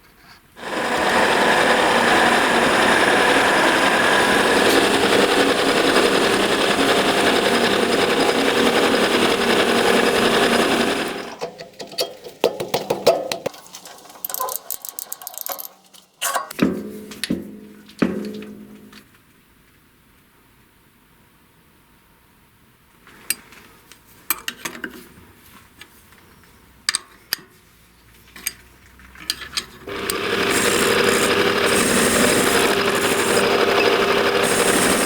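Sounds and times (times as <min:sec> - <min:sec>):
electric power tool running: 0:00.6 - 0:11.4, 0:29.9 - 0:35.0
metal parts clattering: 0:11.4 - 0:16.6.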